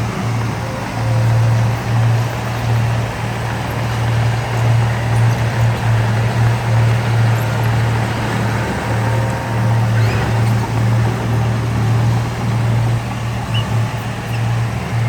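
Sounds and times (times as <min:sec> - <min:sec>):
heavy diesel engine under load: 0:00.0 - 0:15.0.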